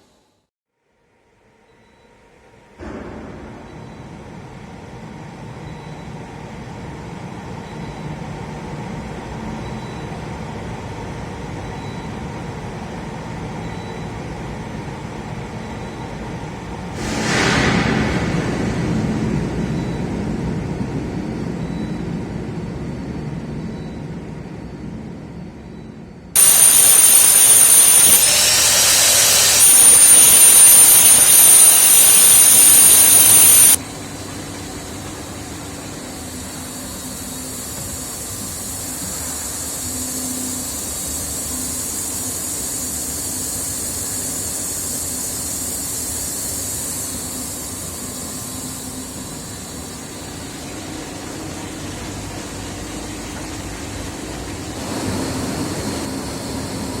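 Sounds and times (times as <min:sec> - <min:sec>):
loud rushing with high whistle: 0:26.4 - 0:33.8.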